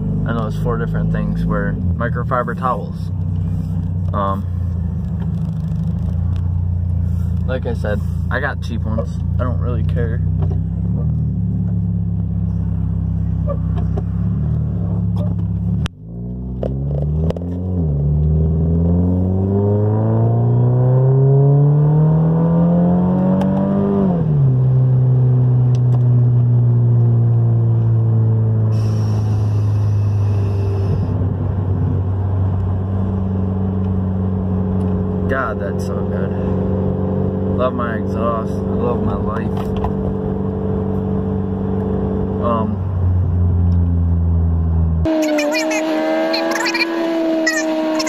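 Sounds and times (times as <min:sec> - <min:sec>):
car engine revving from inside cabin: 0:10.6 - 0:35.3, 0:45.0 - 0:48.0.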